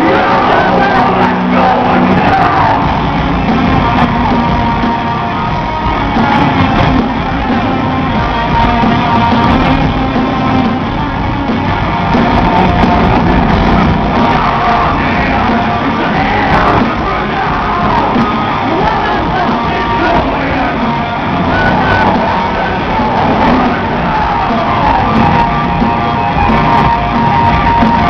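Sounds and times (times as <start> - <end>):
person shouting and singing: 0.0 - 5.1, 12.4 - 25.9
live rock band playing: 0.0 - 28.0.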